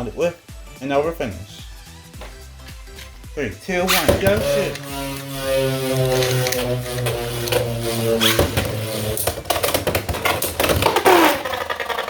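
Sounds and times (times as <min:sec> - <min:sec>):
spinning tops whirring: 0:03.8 - 0:12.0.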